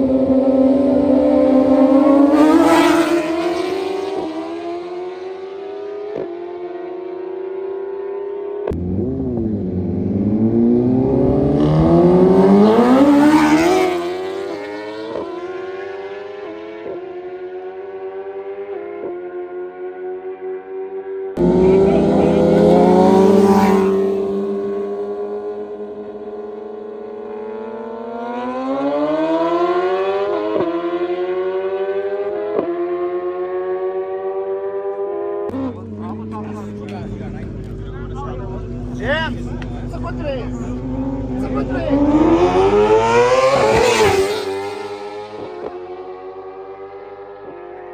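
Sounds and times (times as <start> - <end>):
vehicle engine accelerating past: 0.0 - 17.0, 21.4 - 47.9
vehicle engine running: 21.4 - 25.9, 35.5 - 43.0.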